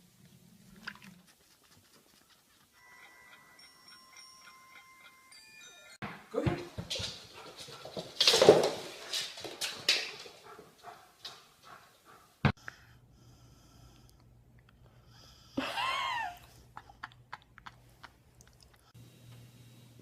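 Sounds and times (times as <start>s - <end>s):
animal breathing and sniffing: 1.1s - 5.4s.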